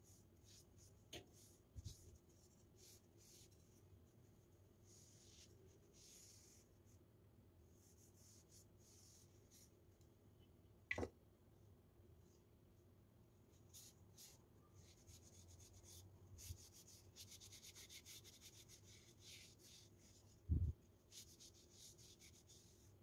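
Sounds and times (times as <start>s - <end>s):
faint scrubbing of a surface: 4.8s - 6.9s.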